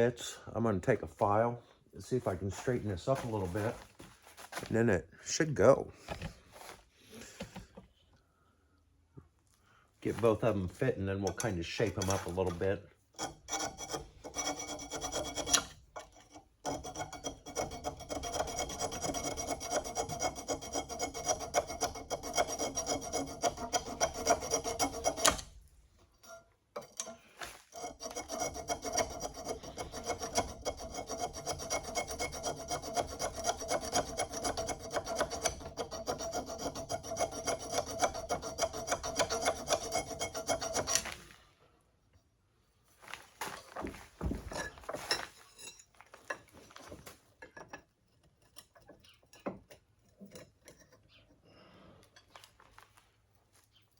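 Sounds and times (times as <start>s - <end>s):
hand file scraping metal: 11.2s - 25.6s, 26.2s - 41.3s.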